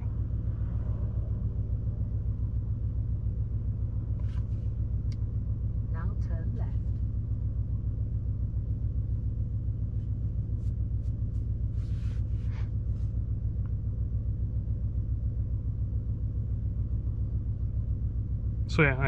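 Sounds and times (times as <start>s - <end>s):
low pulsing car cabin rumble: 0.0s - 19.0s.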